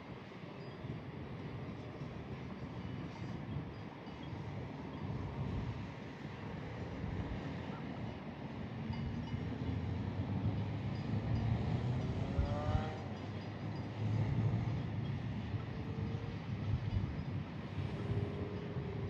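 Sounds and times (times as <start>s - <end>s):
wind noise on microphone: 0.0s - 19.0s
vehicle road rumble: 9.4s - 17.0s.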